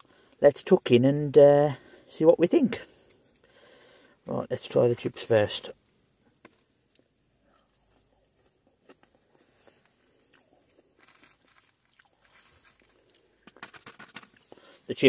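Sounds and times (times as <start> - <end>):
chewing and crunching chips: 6.3 - 14.8.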